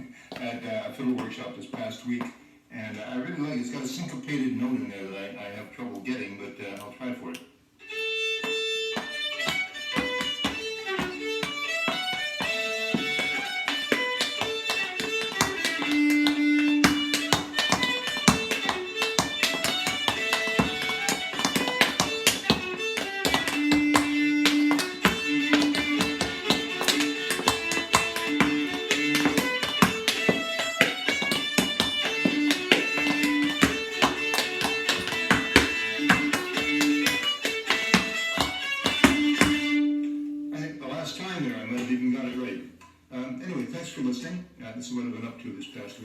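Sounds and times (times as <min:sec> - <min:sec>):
fiddle playing a lively tune: 0:07.8 - 0:42.2
sharp taps: 0:08.4 - 0:39.8.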